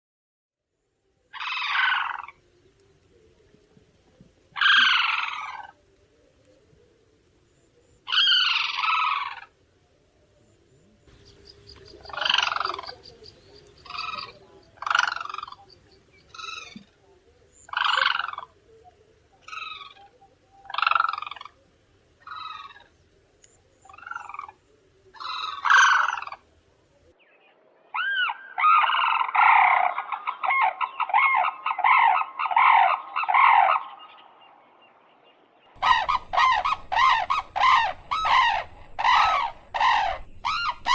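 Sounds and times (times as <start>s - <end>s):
cranes trumpeting calls: 1.3s - 2.4s, 4.6s - 5.8s, 8.1s - 9.6s, 11.1s - 16.9s, 17.7s - 18.6s, 19.4s - 21.6s, 22.2s - 22.9s, 25.2s - 26.4s, 35.8s - 40.9s.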